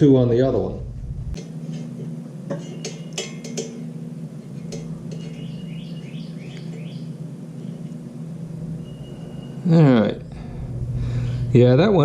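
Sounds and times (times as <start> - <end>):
steady low hum: 0.0 - 12.0
bird singing: 5.1 - 8.0, 8.7 - 10.5.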